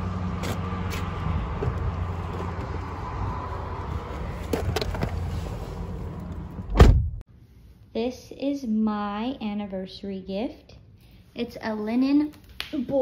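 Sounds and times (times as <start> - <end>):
car engine hum and road noise: 0.0 - 7.3.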